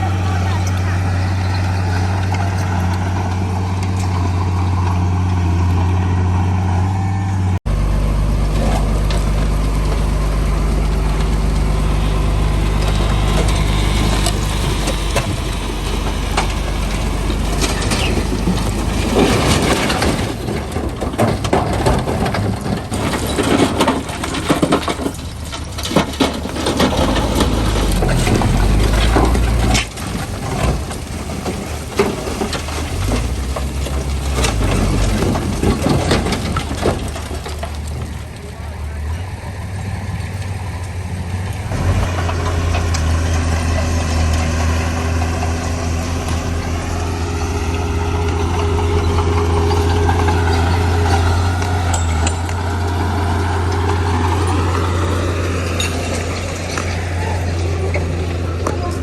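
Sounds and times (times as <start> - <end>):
diesel machinery running: 0.0 - 59.0
stone clattering and crunching: 8.3 - 38.5.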